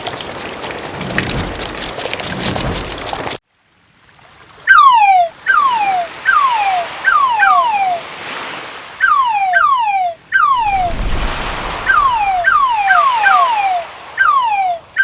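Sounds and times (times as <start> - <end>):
waves breaking on shore: 0.9 - 3.2, 3.8 - 15.0
low rumble: 1.0 - 3.2, 10.6 - 12.8
whistle-like chirps sliding down: 4.7 - 8.0, 9.0 - 15.0.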